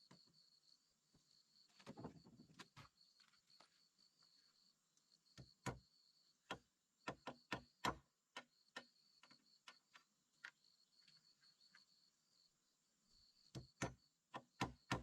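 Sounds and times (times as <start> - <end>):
knocks on a hard object: 13.6 - 15.0.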